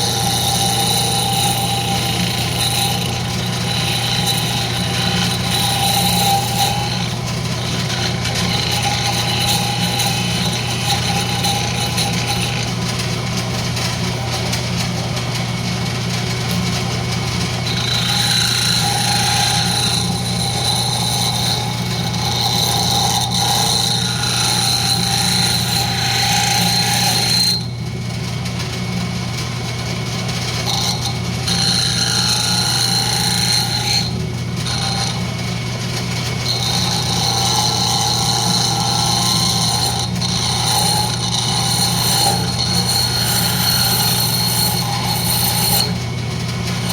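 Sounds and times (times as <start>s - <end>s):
turning tool cutting wood whine: 0.0s - 46.9s
wood lathe humming: 0.0s - 46.9s.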